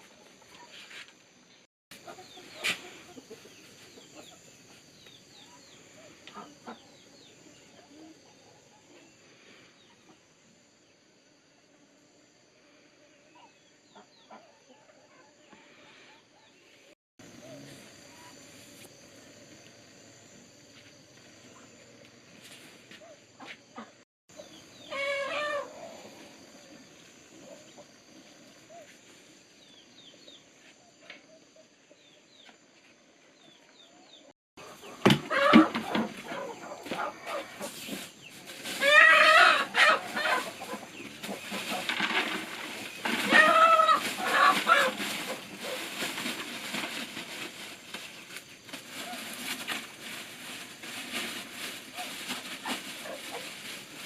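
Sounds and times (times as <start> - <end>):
chickens clucking: 1.9 - 8.2, 22.9 - 28.8, 34.6 - 47.4
sharp knocks from farm work: 34.9 - 38.0.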